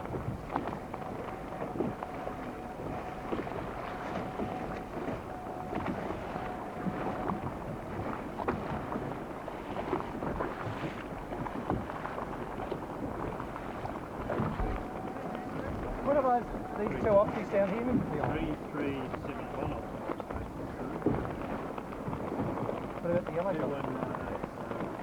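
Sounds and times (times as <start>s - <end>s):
faint steady whine: 0.0s - 10.4s, 12.2s - 22.1s
water around a boat: 0.0s - 25.0s
wind: 0.0s - 25.0s
knocks on a boat: 9.7s - 25.0s.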